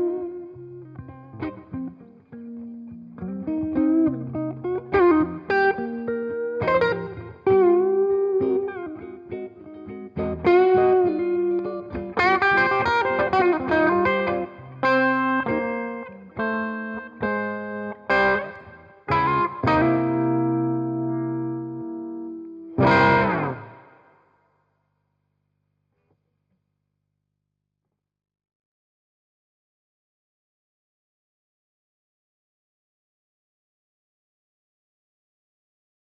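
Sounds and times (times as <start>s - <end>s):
overdriven electric guitar: 0.0s - 24.1s.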